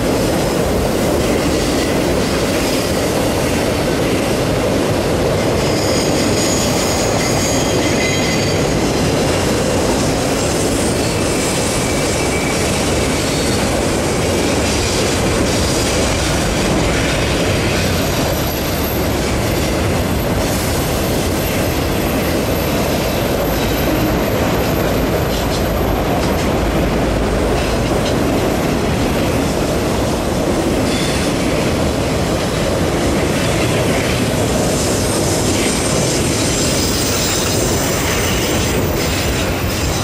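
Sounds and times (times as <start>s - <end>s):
freight cars rumbling on rails: 0.0s - 40.0s
faint high wheel squeal: 5.7s - 8.8s.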